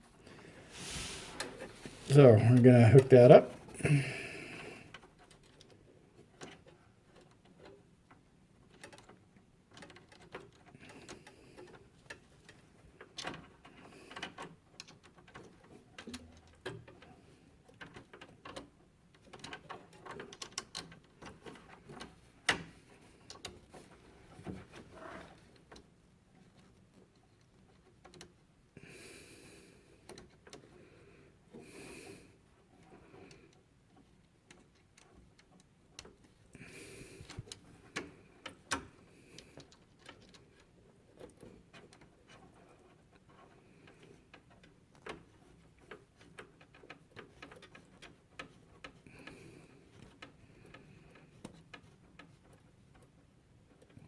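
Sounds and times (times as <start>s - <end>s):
rustling swishes: 0.5s - 2.2s.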